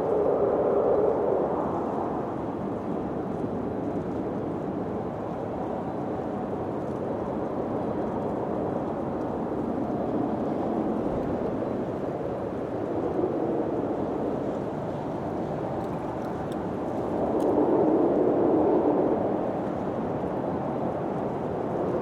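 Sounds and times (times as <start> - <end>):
wind blowing: 9.3 - 22.0.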